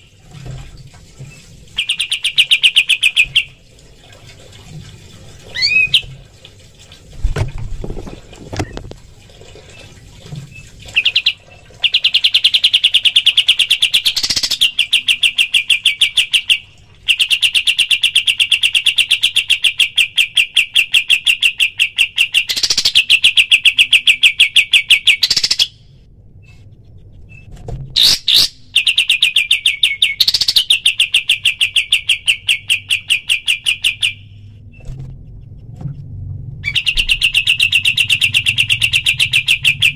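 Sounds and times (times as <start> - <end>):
songbird trilling and whistling: 5.6 - 6.1, 11.0 - 20.8, 21.5 - 25.8, 28.0 - 34.3, 36.6 - 39.9.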